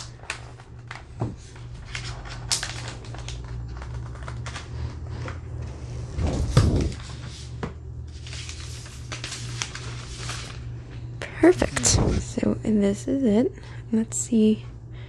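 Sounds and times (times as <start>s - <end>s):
packaging clicks taps and rustles: 0.0s - 5.4s
steady low hum: 0.0s - 15.0s.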